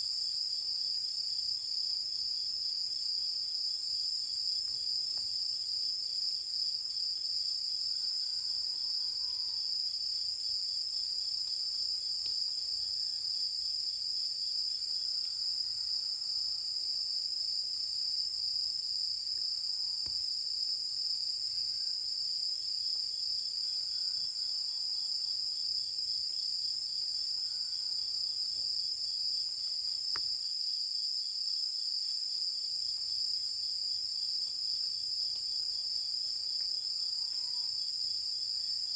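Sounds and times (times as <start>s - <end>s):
insects trilling: 7.3s - 30.4s, 32.9s - 38.9s.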